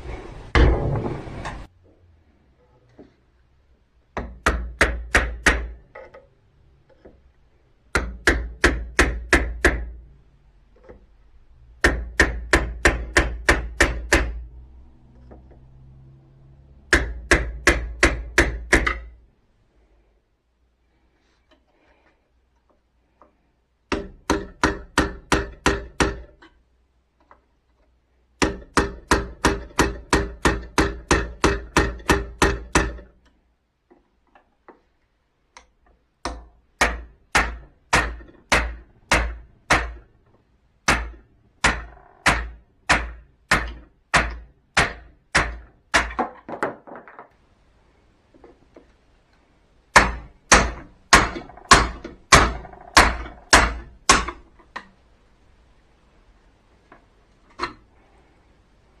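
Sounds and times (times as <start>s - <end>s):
hammer striking metal: 16.9s - 19.1s, 36.3s - 40.0s, 40.8s - 46.2s, 49.9s - 54.4s.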